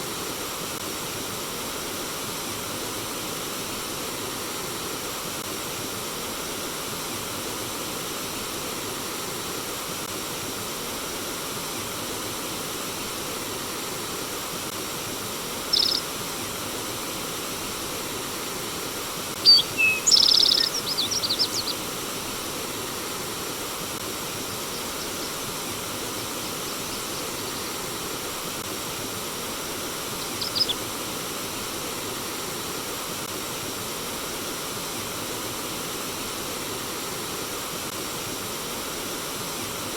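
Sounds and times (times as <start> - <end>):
flowing stream water: 0.0 - 39.9
birds chirping: 15.7 - 16.1, 19.4 - 21.9, 26.5 - 28.1, 30.1 - 30.9.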